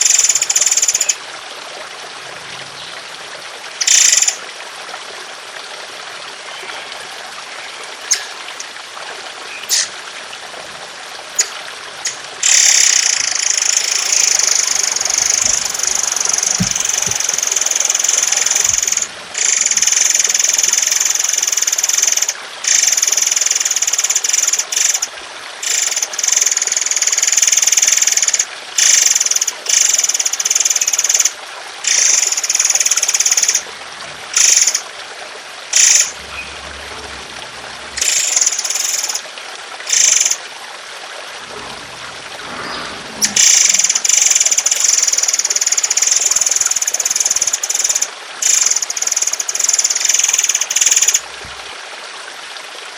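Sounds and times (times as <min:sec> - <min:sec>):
trickling water: 0:00.0 - 0:52.9
songbirds trilling: 0:06.5 - 0:08.8, 0:09.4 - 0:19.8.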